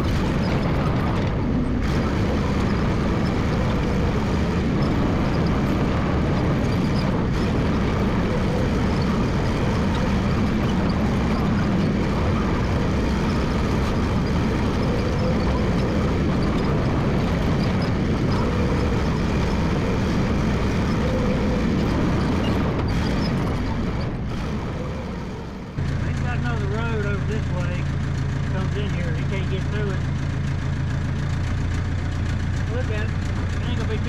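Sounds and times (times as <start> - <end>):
crawler dozer running: 0.0 - 34.0.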